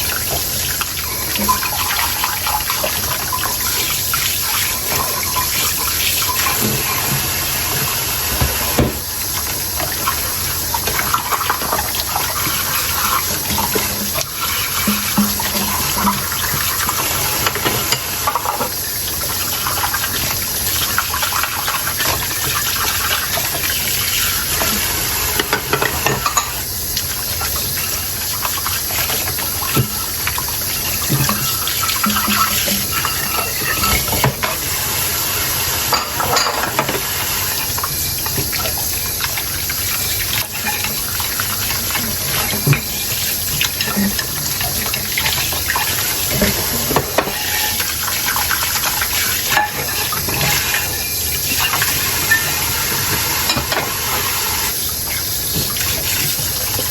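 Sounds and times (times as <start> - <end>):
running tap water: 0.0 - 56.9
tableware clinking: 25.4 - 26.6, 31.1 - 34.6, 35.9 - 37.0, 53.4 - 54.7.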